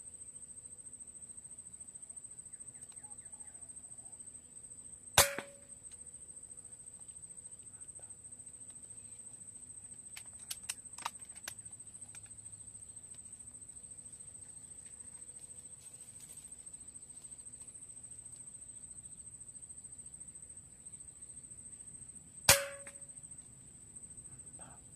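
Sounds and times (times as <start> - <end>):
insects trilling: 0.0 - 24.9
sharp clicks: 10.1 - 12.3.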